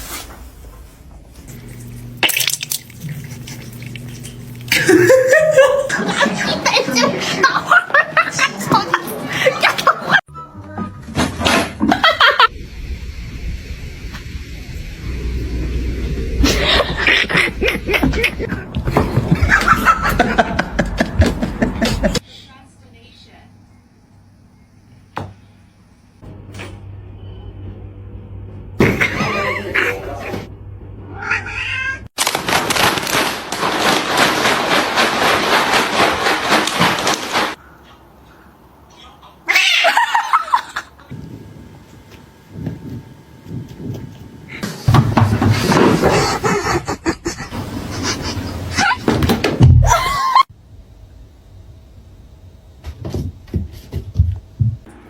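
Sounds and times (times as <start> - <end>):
cats meowing and yowling: 31.1 - 32.1.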